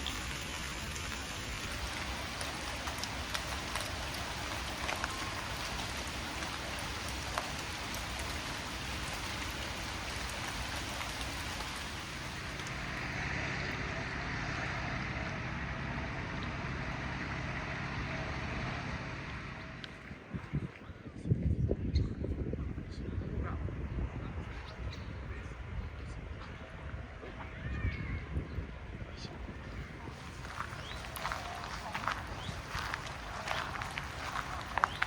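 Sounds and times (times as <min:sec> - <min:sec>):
raindrop ticks: 0:00.0 - 0:13.0, 0:30.3 - 0:35.0
rain falling: 0:00.0 - 0:19.9, 0:30.1 - 0:35.0
low hum: 0:00.0 - 0:20.7.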